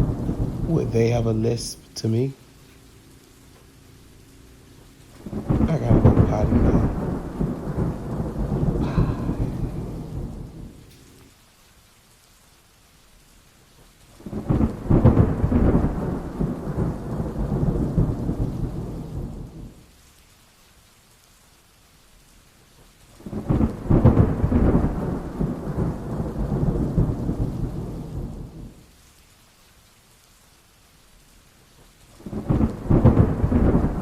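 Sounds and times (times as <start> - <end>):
thunder rumbling: 0.0 - 11.3, 14.2 - 19.8, 23.2 - 28.8, 32.2 - 34.0
faint rain hiss: 0.0 - 34.0.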